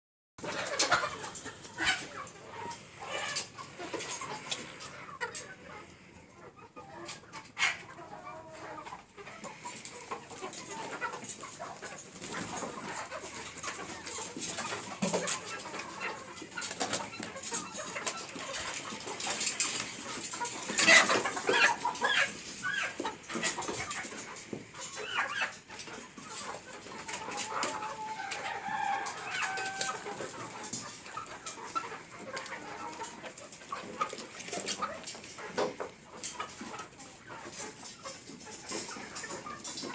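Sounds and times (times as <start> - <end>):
chickens clucking and calling: 0.4 - 39.9.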